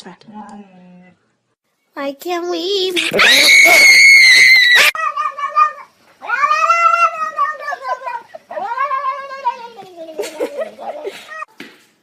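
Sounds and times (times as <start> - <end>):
cat yowling: 3.0 - 9.8.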